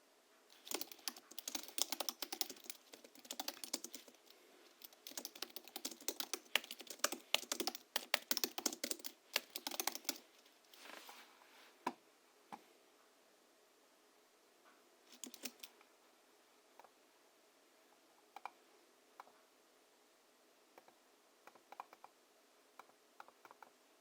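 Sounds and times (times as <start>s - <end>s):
fast keyboard typing: 0.5s - 10.3s, 15.1s - 15.7s.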